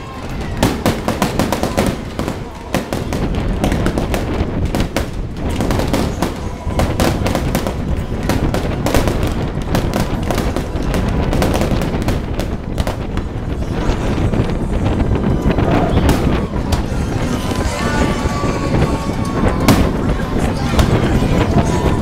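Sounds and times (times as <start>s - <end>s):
fireworks barrage rattling bangs: 0.0s - 22.0s.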